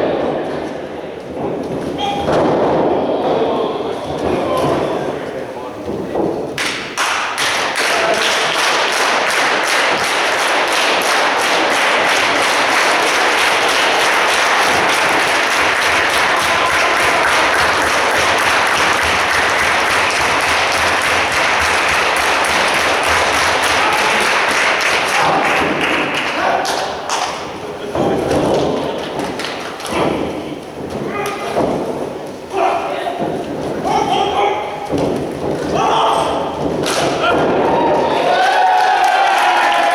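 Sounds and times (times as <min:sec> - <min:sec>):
crowd noise: 0:00.0 - 0:39.9
crowd clapping in rhythm: 0:06.6 - 0:27.4, 0:38.2 - 0:39.9.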